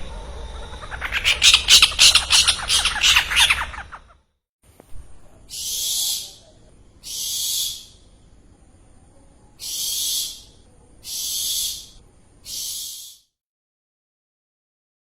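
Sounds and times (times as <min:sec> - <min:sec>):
bird hissing screech calls: 0:00.6 - 0:03.9, 0:05.5 - 0:08.1, 0:09.6 - 0:13.3.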